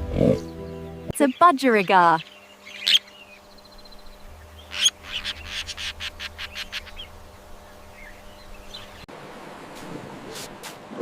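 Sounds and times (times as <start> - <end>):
budgerigar chirping: 1.3 - 3.4, 4.6 - 7.2.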